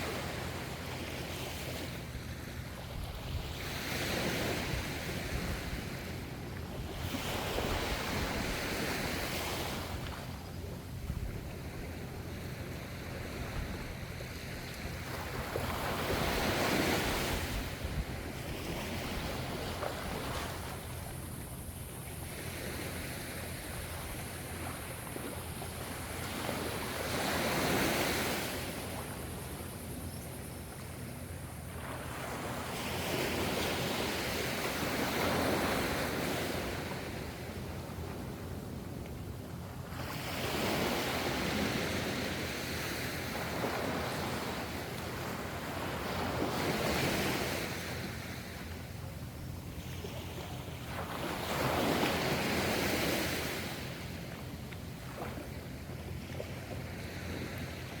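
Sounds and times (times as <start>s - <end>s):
ocean waves breaking: 0.0s - 38.6s, 39.5s - 58.0s.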